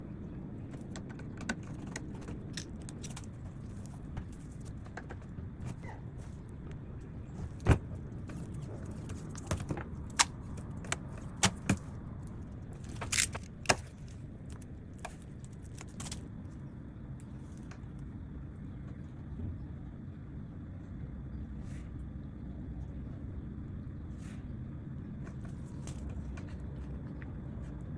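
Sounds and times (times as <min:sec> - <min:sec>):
steady low hum: 0:00.0 - 0:27.9
tools and wood clicking and knocking: 0:00.7 - 0:05.8, 0:12.8 - 0:16.2.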